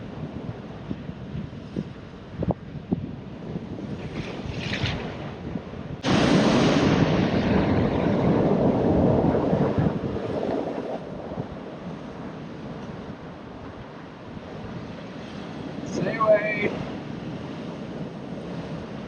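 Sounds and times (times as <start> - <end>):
ocean surf: 0.0 - 19.0
wind buffeting microphone: 0.0 - 19.0
wave breaking: 3.8 - 19.0.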